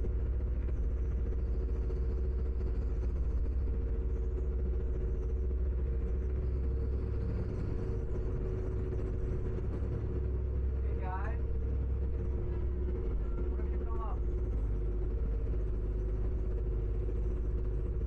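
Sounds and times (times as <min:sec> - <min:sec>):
ferry engines rumbling: 0:05.7 - 0:18.0.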